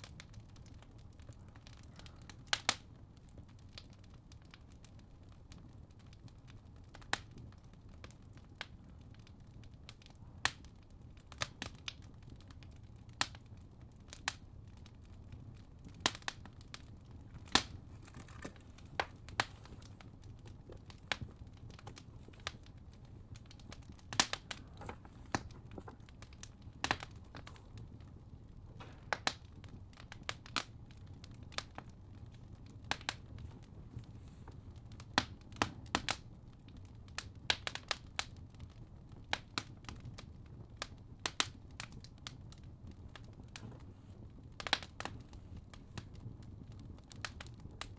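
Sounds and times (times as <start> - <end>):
fireplace crackling: 0.0 - 47.9
low steady rumble: 15.1 - 35.2.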